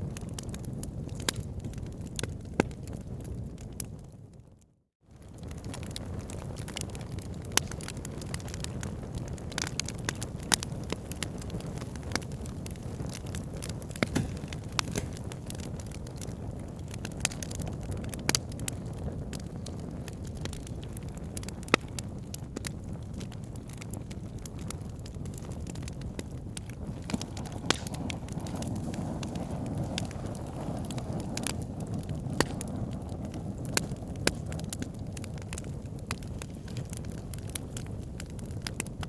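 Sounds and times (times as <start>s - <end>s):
fire crackling and popping: 0.0s - 39.0s.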